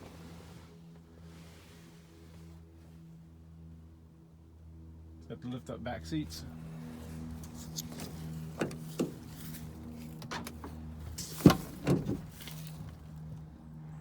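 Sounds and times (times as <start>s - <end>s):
steady low hum: 0.0s - 14.0s
seat clicks and knocks: 7.4s - 13.0s.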